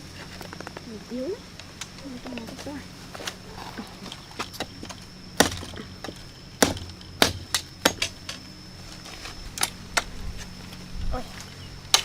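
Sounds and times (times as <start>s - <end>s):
blade chopping wood: 4.2s - 8.4s.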